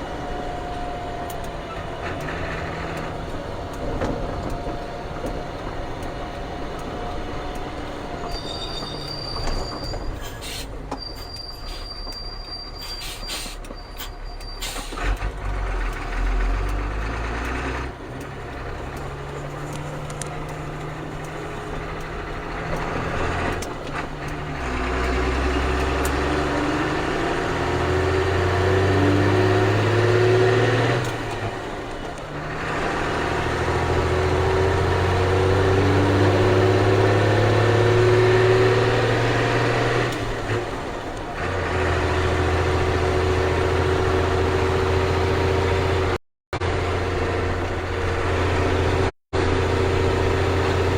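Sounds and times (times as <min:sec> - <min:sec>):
diesel truck engine accelerating: 0:00.0 - 0:50.9
sharp clicks: 0:00.4 - 0:26.6
high thin squeal: 0:08.2 - 0:15.0.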